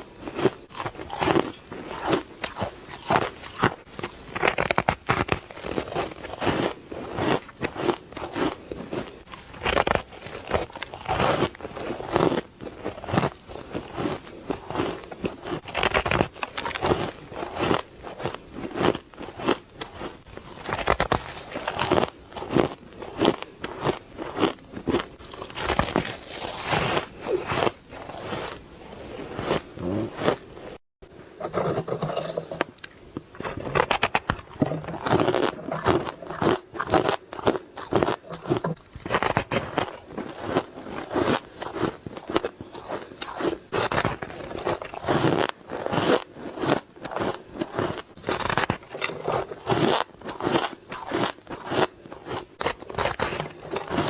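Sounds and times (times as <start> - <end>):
ice being chewed: 0.0 - 54.0.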